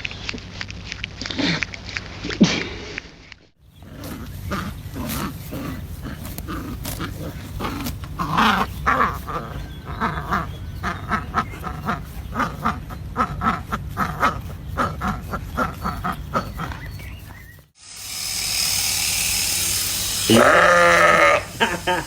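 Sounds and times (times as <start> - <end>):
ducks quacking: 3.8 - 16.9, 20.2 - 22.0
steady hiss: 17.8 - 22.0.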